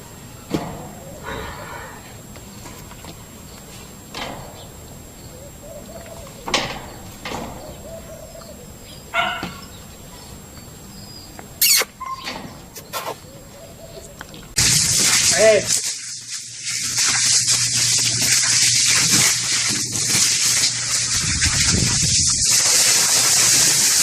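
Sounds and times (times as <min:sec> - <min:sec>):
short animal calls: 0:11.6 - 0:13.3.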